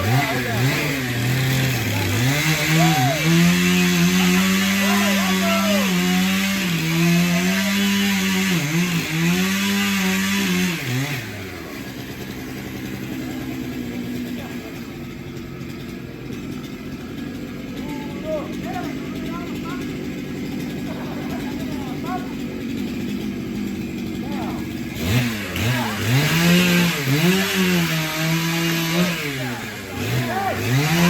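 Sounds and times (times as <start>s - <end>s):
chainsaw cutting wood: 0.0s - 31.0s.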